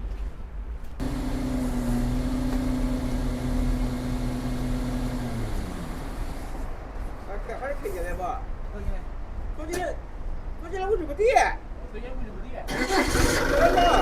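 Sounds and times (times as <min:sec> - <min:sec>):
excavator diesel engine: 0:01.0 - 0:06.7, 0:12.7 - 0:14.0.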